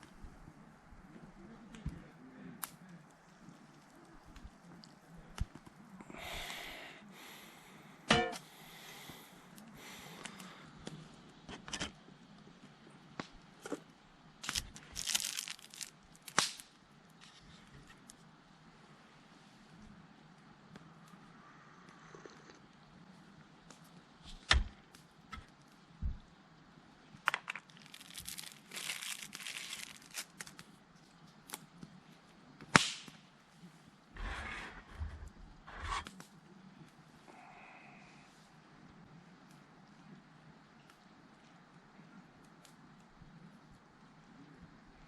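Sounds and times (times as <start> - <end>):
rustling and crinkling: 13.5 - 18.3, 27.3 - 32.4
sharp snap: 16.3 - 16.7, 32.7 - 33.2.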